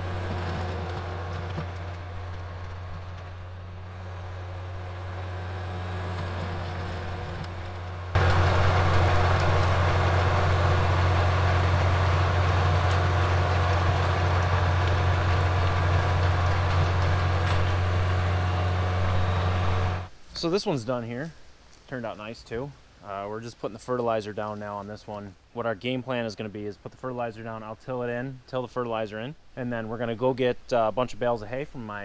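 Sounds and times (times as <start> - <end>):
tractor diesel engine running: 0.0 - 20.1.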